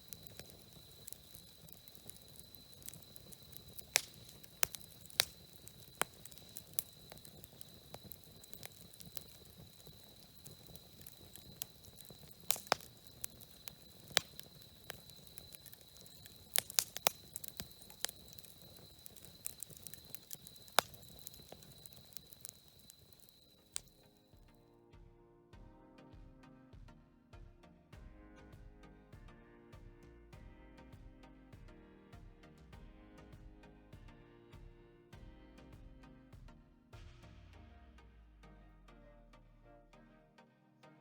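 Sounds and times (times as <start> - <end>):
campfire crackling and popping: 0.0 - 24.2.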